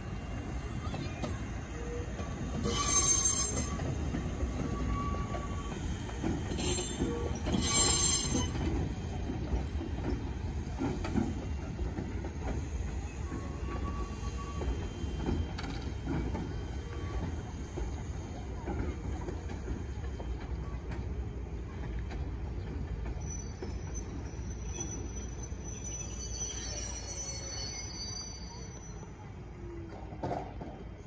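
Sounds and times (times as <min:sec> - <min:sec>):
train wheels rumbling and clacking: 0:00.0 - 0:31.0
shrill wheel squeals: 0:00.3 - 0:08.7, 0:12.6 - 0:17.1, 0:22.9 - 0:29.8.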